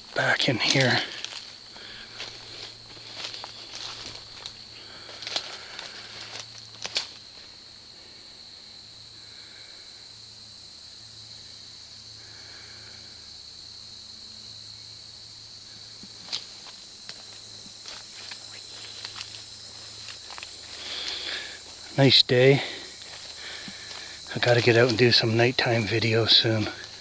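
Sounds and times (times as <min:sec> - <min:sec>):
dry weeds crackling: 0:00.0 - 0:07.5, 0:16.0 - 0:27.0
crunching footsteps: 0:00.0 - 0:07.6, 0:15.9 - 0:27.0
high-pitched insect chorus: 0:00.0 - 0:27.0.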